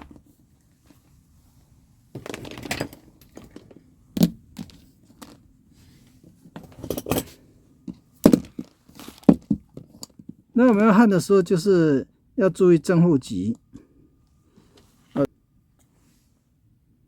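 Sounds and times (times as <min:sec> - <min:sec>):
small parts clattering: 0:02.1 - 0:05.5
hard objects clicking and knocking: 0:07.9 - 0:10.4.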